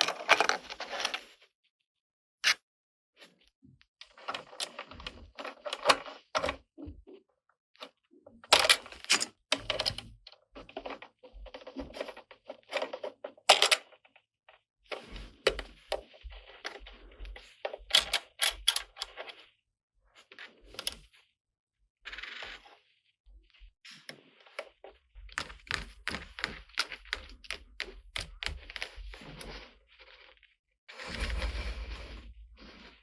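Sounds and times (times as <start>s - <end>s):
plastic parts clicking and tapping: 10.8s - 14.0s, 17.9s - 19.2s, 24.6s - 29.6s.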